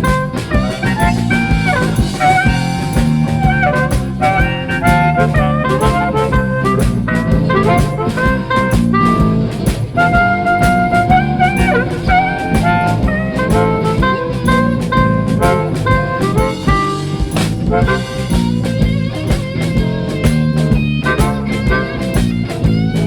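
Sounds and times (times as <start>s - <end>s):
bass: 0.0s - 23.0s
drum kit beat: 0.0s - 23.0s
lead line of bending notes: 0.0s - 23.0s.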